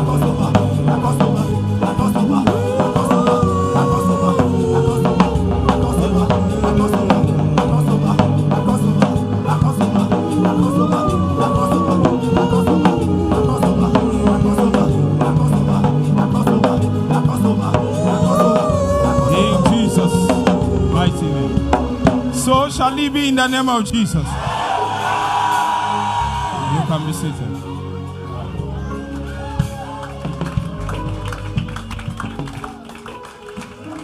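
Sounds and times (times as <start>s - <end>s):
drum kit beat: 0.0s - 23.8s
low keyboard chords: 0.0s - 34.0s.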